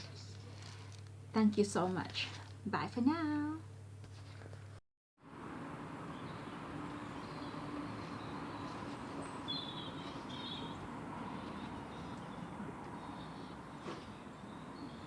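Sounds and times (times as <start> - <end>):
background hiss and hum: 0.0 - 15.0
high bird chirps: 6.1 - 13.7.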